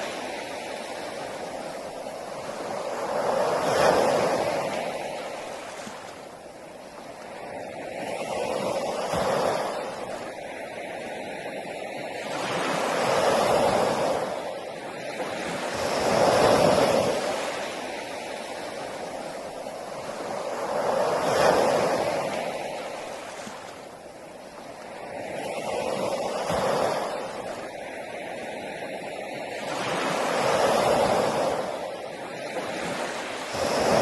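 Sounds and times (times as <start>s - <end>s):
sea waves breaking on shore: 0.0s - 34.0s.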